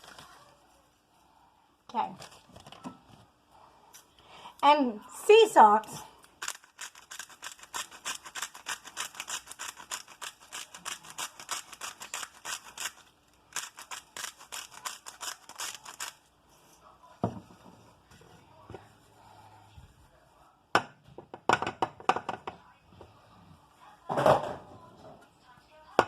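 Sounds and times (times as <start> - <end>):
salt grinder scratchy clicks: 6.4 - 16.2.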